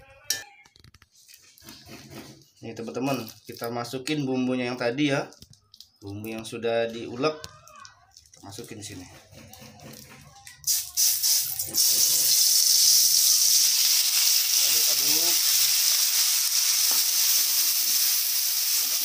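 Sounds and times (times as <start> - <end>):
spatula stirring in wok: 1.1 - 2.6
oil spitting: 8.2 - 19.0
spice paste sizzling in hot oil: 10.6 - 19.0.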